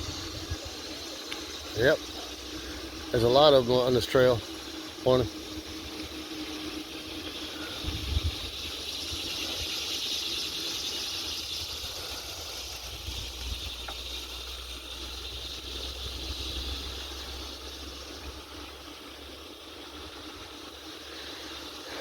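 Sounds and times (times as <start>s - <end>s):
bicycle tyres hissing: 0.0s - 22.0s
wind on microphone: 7.8s - 8.6s.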